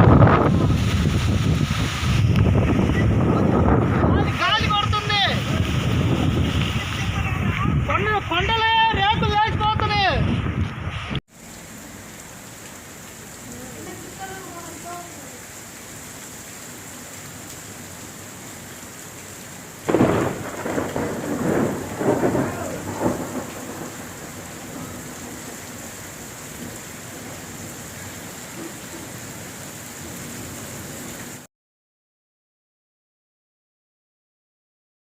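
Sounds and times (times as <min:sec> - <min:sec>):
thunder rumbling: 0:00.0 - 0:11.2, 0:19.8 - 0:27.6
steady rain falling: 0:00.0 - 0:31.5.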